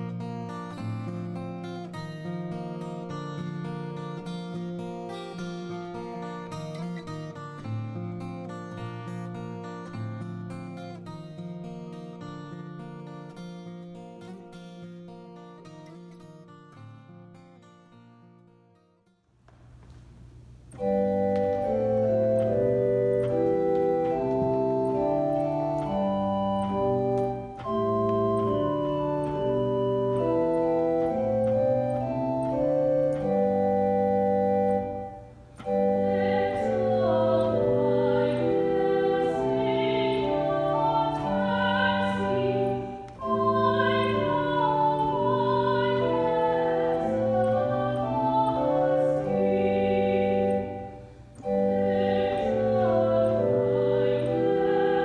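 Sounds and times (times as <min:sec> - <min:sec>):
organ playing sustained chords: 0:19.9 - 0:55.0.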